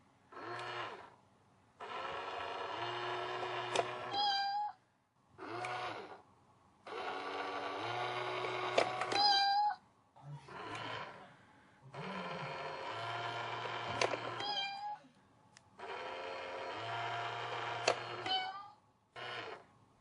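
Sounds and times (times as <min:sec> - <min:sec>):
recorded cat meow: 0:04.1 - 0:04.8, 0:09.1 - 0:09.8, 0:14.3 - 0:15.1, 0:18.2 - 0:18.8.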